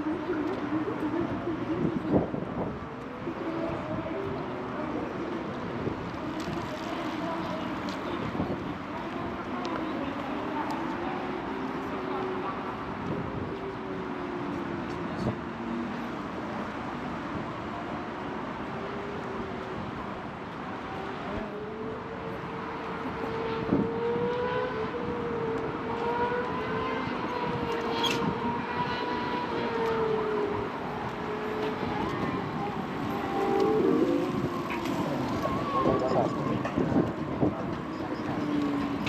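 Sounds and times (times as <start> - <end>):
steady traffic noise: 0.0 - 39.0
distant siren wailing: 20.9 - 39.0.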